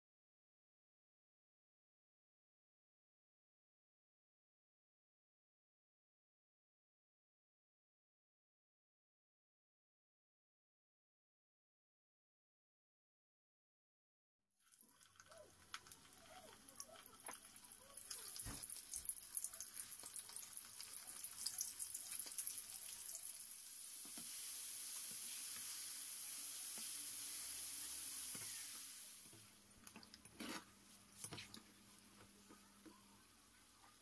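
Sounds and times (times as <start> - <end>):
fish deep-frying in oil: 14.6 - 30.3.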